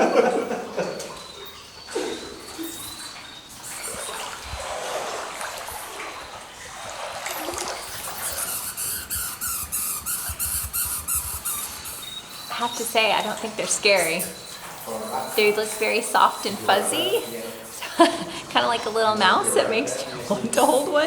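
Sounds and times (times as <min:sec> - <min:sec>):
water trickling in a cave: 0:00.0 - 0:21.0
regular high ticking: 0:07.6 - 0:19.4.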